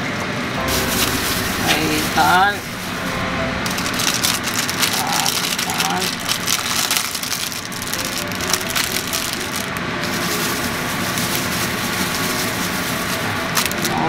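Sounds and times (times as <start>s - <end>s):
plastic wrappers crinkling: 3.7s - 14.0s.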